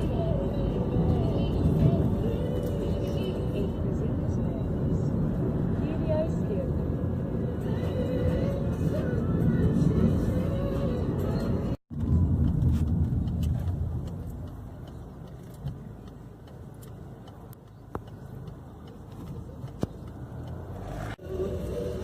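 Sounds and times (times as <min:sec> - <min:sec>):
car road and engine noise: 0:00.0 - 0:22.0
faint clicks: 0:12.5 - 0:20.7.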